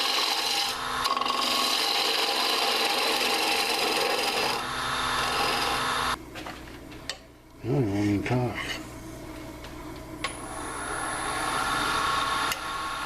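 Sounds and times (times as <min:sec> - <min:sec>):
lathe tool scraping wood: 0:00.0 - 0:06.2, 0:10.4 - 0:13.0.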